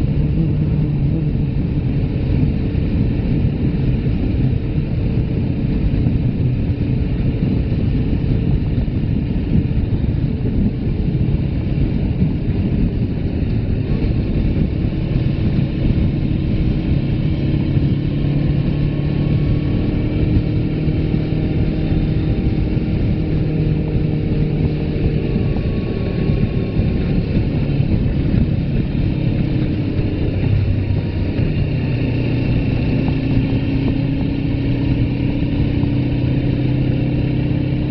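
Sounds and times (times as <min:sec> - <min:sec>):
motorcycle engine running: 0:00.0 - 0:37.9
wind rumble on microphone: 0:00.0 - 0:37.9.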